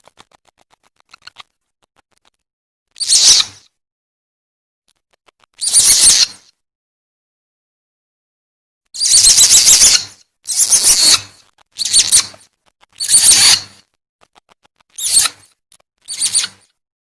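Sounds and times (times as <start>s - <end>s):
shrill warbling lure calls: 9.0s - 13.8s, 14.9s - 16.7s.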